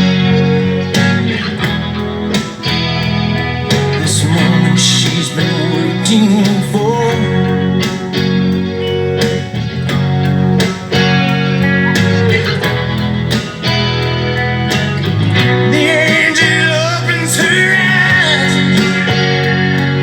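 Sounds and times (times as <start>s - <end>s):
electric guitar: 0.0s - 20.0s
full band backing track: 0.0s - 20.0s
person singing: 3.7s - 8.1s, 11.9s - 13.8s, 15.5s - 20.0s.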